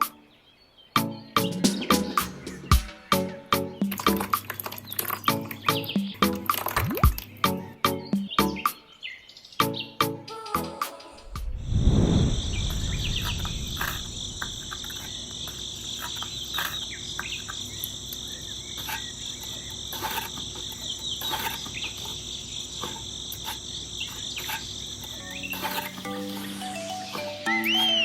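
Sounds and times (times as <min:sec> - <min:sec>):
low rumble: 0:11.2 - 0:15.4
insect trill: 0:11.2 - 0:28.0.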